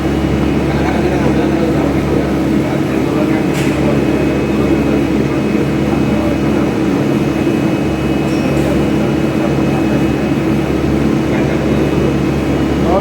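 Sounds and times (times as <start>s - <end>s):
machinery drone: 0.0s - 13.0s.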